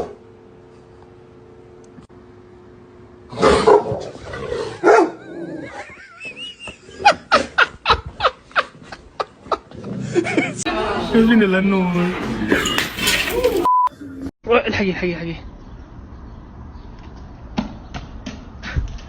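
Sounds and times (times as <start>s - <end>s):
dog barking: 3.4s - 4.0s, 4.8s - 5.2s.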